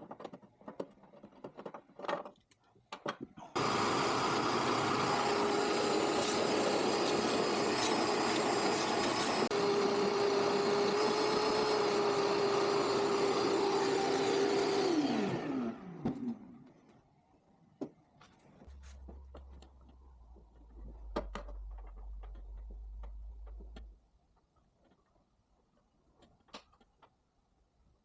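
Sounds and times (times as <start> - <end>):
engine winding down: 3.6 - 16.5.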